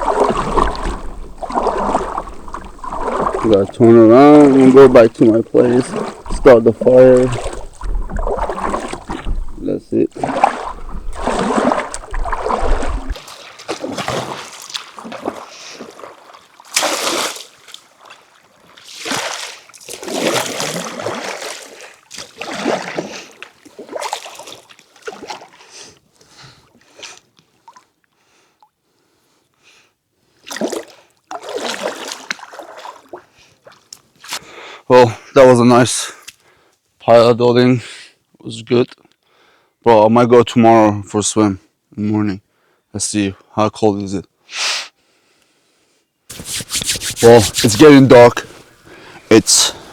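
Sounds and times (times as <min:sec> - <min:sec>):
paddle strokes splashing in water: 0:00.0 - 0:25.6, 0:30.5 - 0:34.4, 0:46.3 - 0:49.9.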